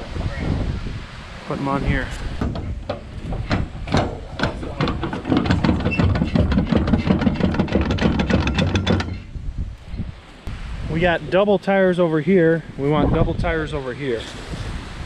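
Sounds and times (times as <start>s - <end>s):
clattering knocks and rattles: 2.4s - 9.4s.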